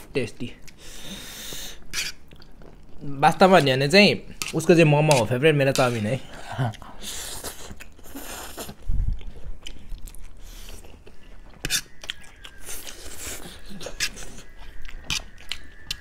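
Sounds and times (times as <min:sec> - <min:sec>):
chewing noodles: 0:06.5 - 0:16.0.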